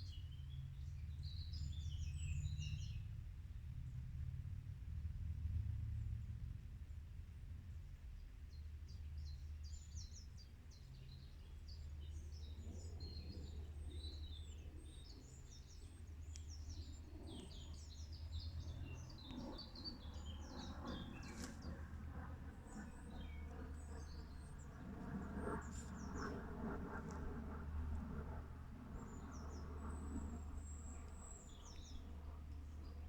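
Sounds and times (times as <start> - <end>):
birds singing: 8.9 - 27.4, 28.8 - 33.0.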